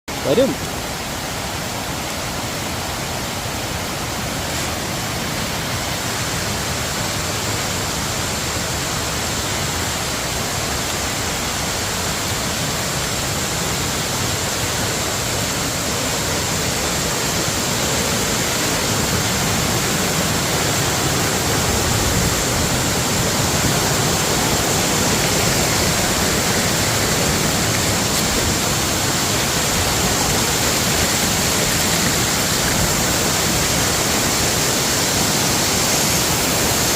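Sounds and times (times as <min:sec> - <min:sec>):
waterfall rushing: 0:00.1 - 0:36.9.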